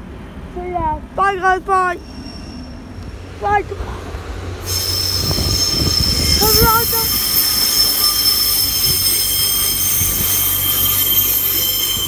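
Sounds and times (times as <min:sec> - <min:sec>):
diesel trains passing: 0:00.0 - 0:12.0
train wheels squealing: 0:02.0 - 0:03.0, 0:04.6 - 0:12.0.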